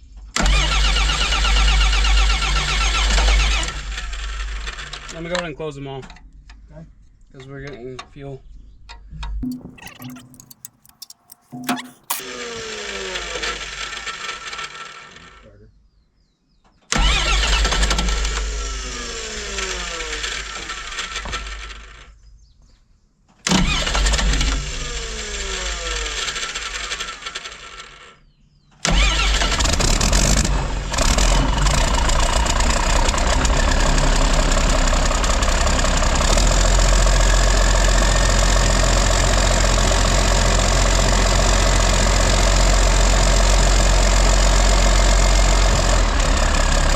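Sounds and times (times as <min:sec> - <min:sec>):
starter motor cranking engine: 0:00.4 - 0:05.1, 0:09.4 - 0:15.4, 0:17.0 - 0:22.0, 0:23.5 - 0:28.0, 0:28.9 - 0:46.9
diesel engine running loudly: 0:29.0 - 0:46.9.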